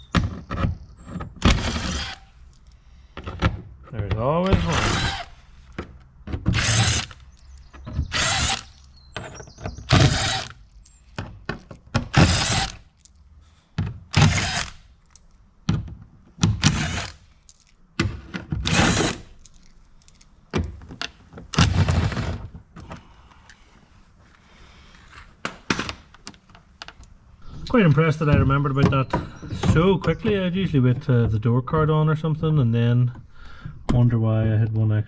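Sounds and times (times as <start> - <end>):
small clicks: 1.1 - 3.1, 5.0 - 13.6, 14.2 - 15.5, 16.6 - 17.9, 18.7 - 21.2
cordless drill bursts: 1.4 - 2.5, 4.5 - 5.8, 6.5 - 11.2, 12.1 - 13.0, 14.1 - 15.0, 16.5 - 17.3, 18.7 - 19.4.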